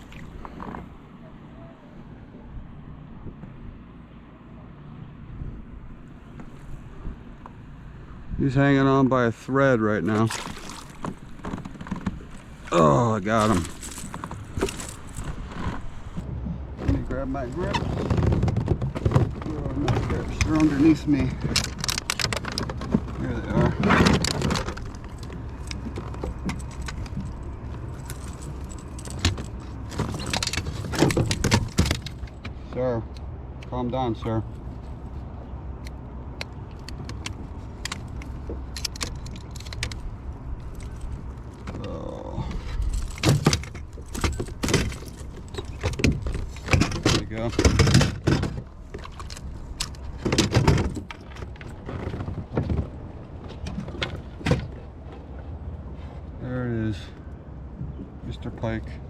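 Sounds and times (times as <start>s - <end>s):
gear knocking and rattling: 10.4s - 32.6s, 36.4s - 55.1s.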